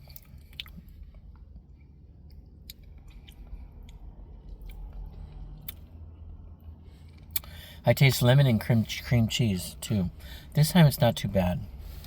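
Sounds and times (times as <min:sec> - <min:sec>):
person chewing food: 0:00.0 - 0:07.6
steady low hum: 0:00.0 - 0:12.0.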